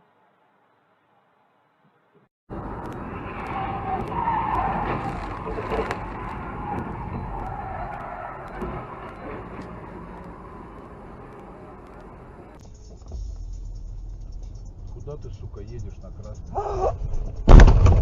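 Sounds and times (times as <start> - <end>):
car tyres skidding: 2.5 - 12.6
road and engine noise: 2.5 - 17.6.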